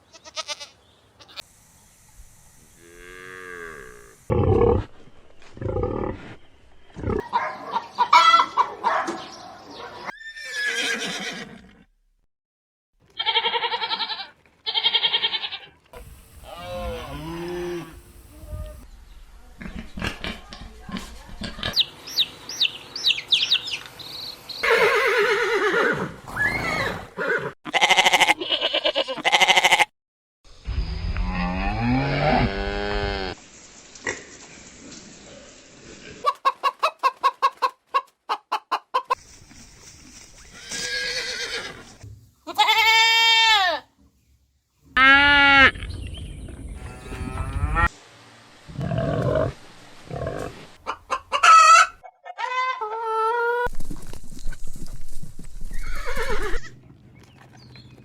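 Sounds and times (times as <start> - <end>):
farm animals bleating: 0.0 - 1.5, 13.1 - 15.8, 16.4 - 18.8, 27.7 - 29.9, 42.5 - 43.9, 45.0 - 45.8, 46.8 - 47.9.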